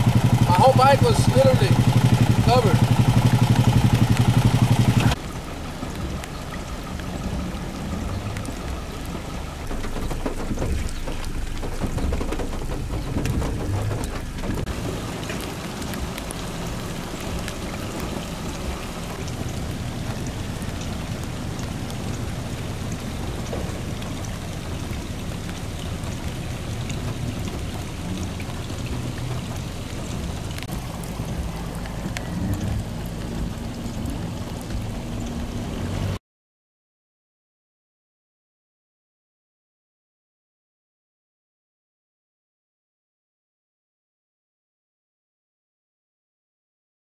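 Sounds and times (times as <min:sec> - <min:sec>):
low rumble: 0:00.0 - 0:36.2
rain falling on water: 0:00.0 - 0:36.2.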